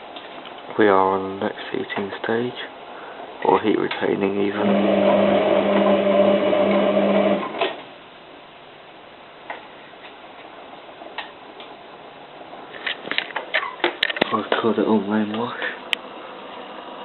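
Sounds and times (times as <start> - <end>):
washing machine motor hum: 4.5 - 7.8.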